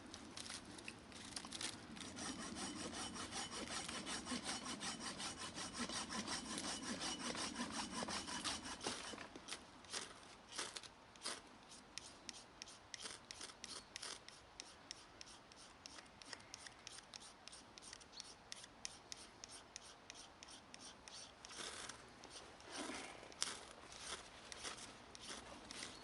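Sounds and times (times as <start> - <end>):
short scraping strokes: 1.2 - 11.4.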